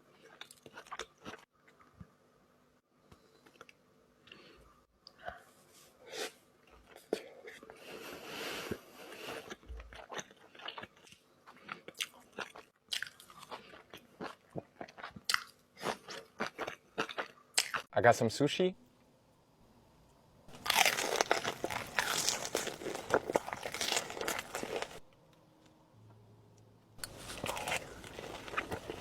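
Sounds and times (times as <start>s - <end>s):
person chewing food: 0.2s - 1.9s, 9.0s - 17.9s, 20.5s - 25.1s, 27.0s - 29.0s.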